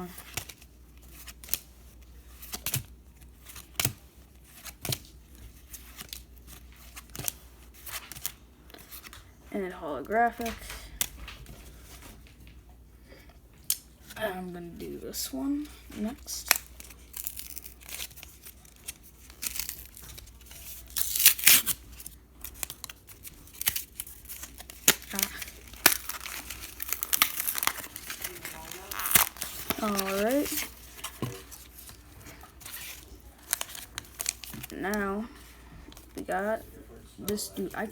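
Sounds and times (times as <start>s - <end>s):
foil wrapper crinkling and tearing: 16.4s - 35.0s
trading cards snapping: 22.5s - 31.8s.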